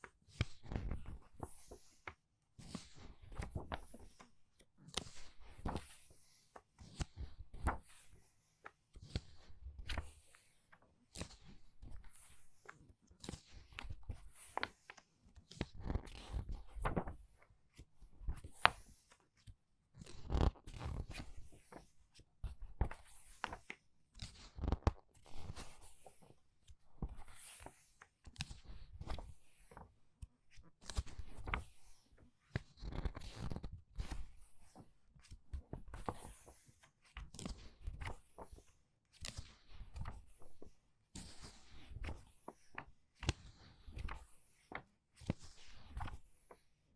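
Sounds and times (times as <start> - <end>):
book pages turning: 3.0 - 4.3, 5.0 - 8.4, 14.3 - 17.2, 27.1 - 29.8, 30.8 - 32.0, 32.8 - 46.6.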